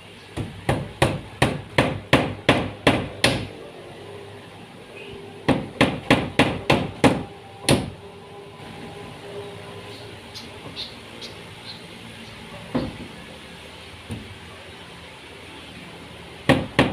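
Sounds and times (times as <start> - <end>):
hammer striking wood: 0.4 - 3.5, 5.5 - 7.9, 16.5 - 16.9.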